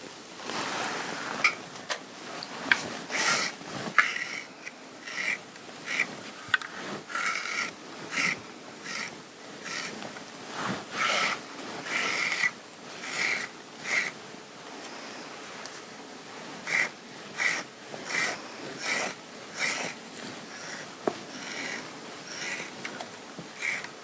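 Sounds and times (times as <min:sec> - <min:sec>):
fabric being brushed: 0:00.0 - 0:04.0, 0:10.0 - 0:11.9.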